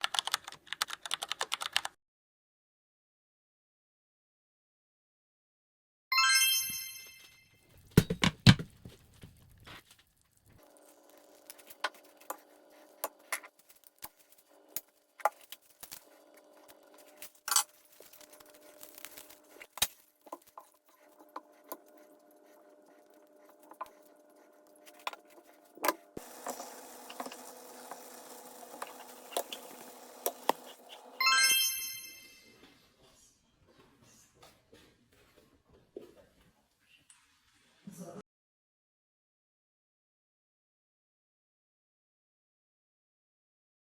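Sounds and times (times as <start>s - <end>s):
heavy thumps: 7.9s - 9.0s.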